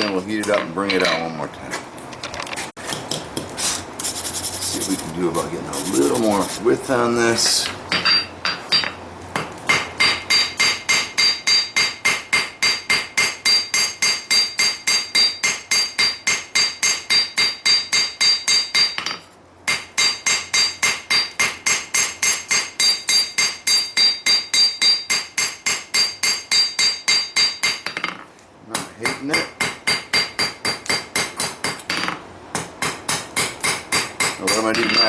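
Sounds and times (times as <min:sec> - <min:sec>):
hammer striking steel on anvil: 0:09.7 - 0:28.2, 0:28.8 - 0:35.0.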